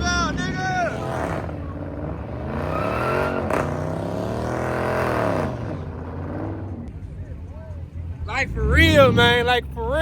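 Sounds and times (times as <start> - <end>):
car engine revving: 0.0 - 6.9.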